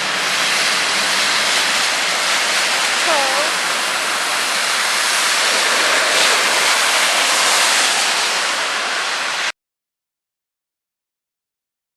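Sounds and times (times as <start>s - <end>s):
rushing floodwater: 0.0s - 9.5s
heavy rain: 0.0s - 9.6s.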